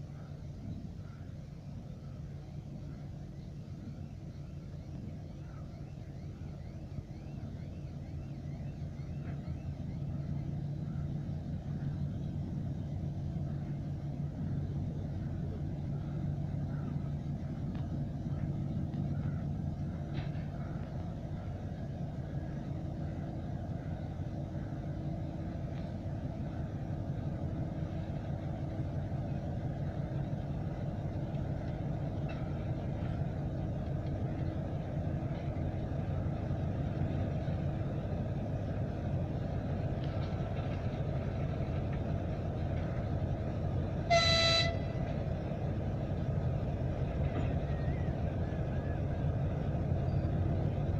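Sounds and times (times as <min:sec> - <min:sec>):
locomotive engines running: 0:00.0 - 0:50.9
locomotive horn blast: 0:43.9 - 0:45.3.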